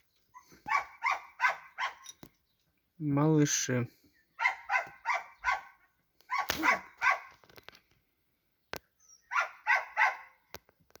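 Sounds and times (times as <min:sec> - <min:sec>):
dog barking: 0:00.6 - 0:02.0, 0:04.4 - 0:07.4, 0:09.3 - 0:10.4.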